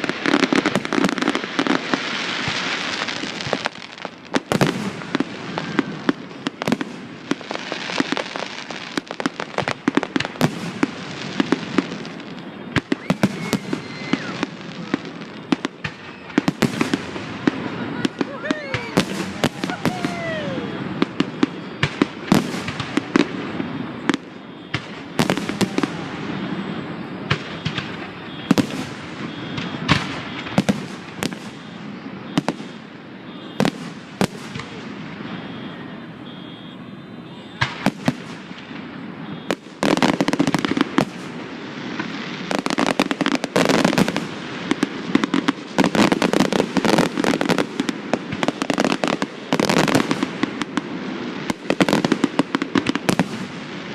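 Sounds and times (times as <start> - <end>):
fireworks bangs: 0.0 - 53.9
fireworks crackling: 0.0 - 53.9
rapid fireworks barrage: 0.0 - 53.9.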